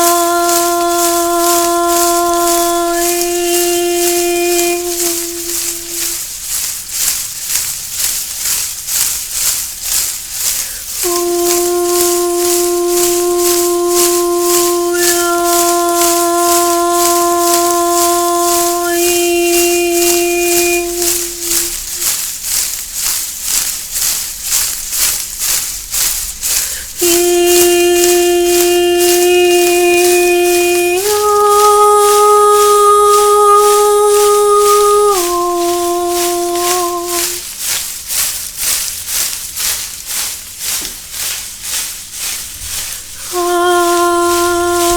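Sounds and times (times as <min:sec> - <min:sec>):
long held notes: 0:00.0 - 0:06.2, 0:10.9 - 0:22.1, 0:26.9 - 0:37.5, 0:43.2 - 0:44.9
rattle shaken in rhythm: 0:00.0 - 0:44.9.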